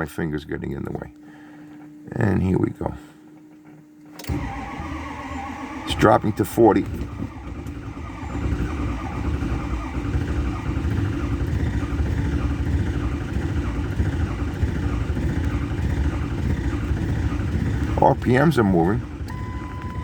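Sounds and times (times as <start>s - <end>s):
diesel engine starter cranking: 4.2s - 20.0s.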